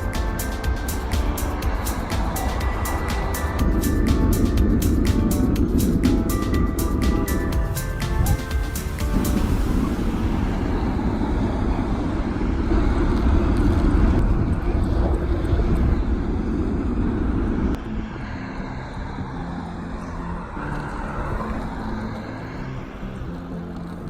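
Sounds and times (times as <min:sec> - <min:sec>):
background music: 0:00.0 - 0:12.5, 0:17.6 - 0:24.0
wind rumbling on microphone: 0:00.0 - 0:24.0.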